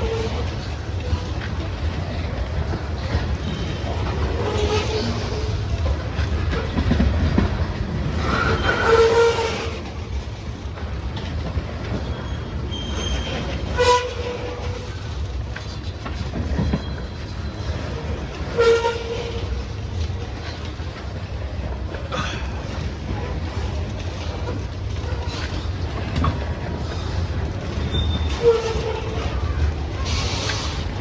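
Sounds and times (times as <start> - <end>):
freight train rumbling past: 0.0 - 31.0
train horn blasts: 13.7 - 14.9, 18.4 - 19.6.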